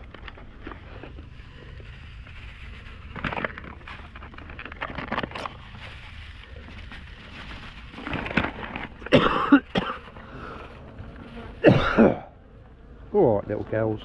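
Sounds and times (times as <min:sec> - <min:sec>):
plastic bag rustling: 0:00.0 - 0:12.4
person coughing: 0:09.0 - 0:10.2, 0:11.6 - 0:12.3.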